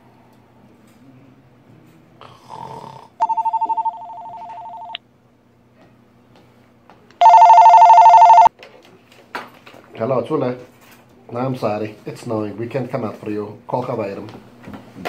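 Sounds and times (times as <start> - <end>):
person snoring: 2.2 - 3.2
telephone two-tone ring: 3.2 - 5.0, 7.2 - 8.5.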